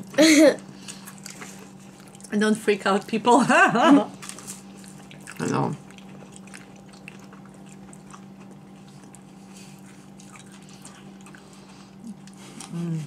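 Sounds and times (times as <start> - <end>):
people chewing food: 0.0 - 13.0
steady low hum: 0.0 - 13.0.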